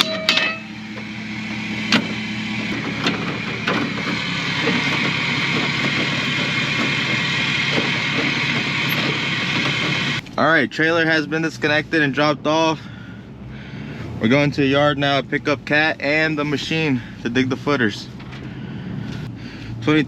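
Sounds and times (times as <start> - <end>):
metal clanks and knocks: 0.0 - 10.2
vehicle engine running: 0.0 - 20.0.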